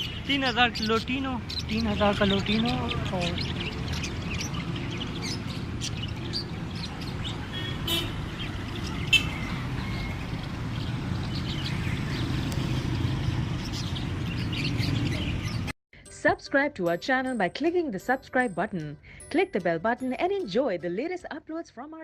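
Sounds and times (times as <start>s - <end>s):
caged birds chirping: 0.0s - 15.8s.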